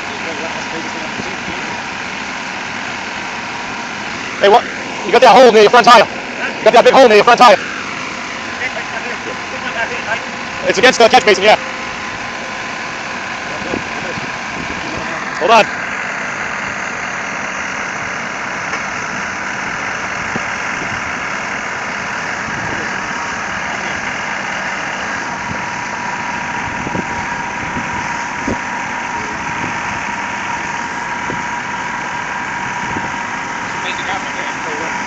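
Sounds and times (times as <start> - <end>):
truck diesel engine idling: 0.0 - 35.0.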